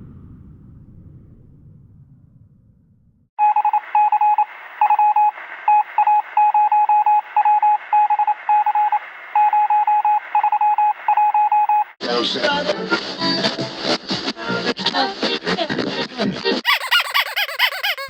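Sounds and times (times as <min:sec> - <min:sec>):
low rumble: 0:00.0 - 0:03.3
rapid electronic beeps: 0:03.4 - 0:11.9.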